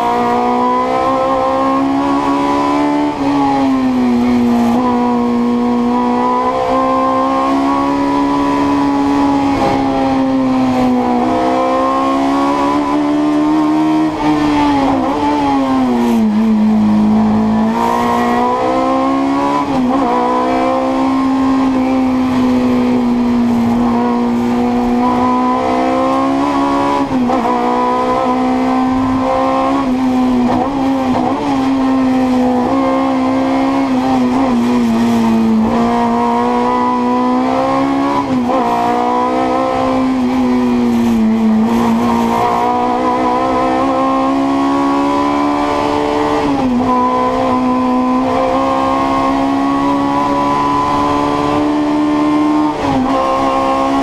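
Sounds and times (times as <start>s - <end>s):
racing engine at high revs: 0.0s - 54.0s.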